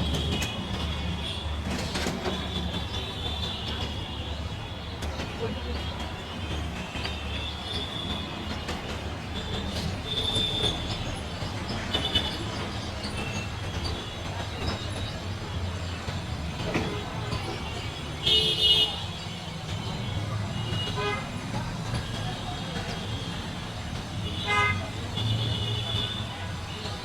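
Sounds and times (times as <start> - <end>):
train rumble: 0.0 - 27.0
train wheels squealing: 6.5 - 18.2.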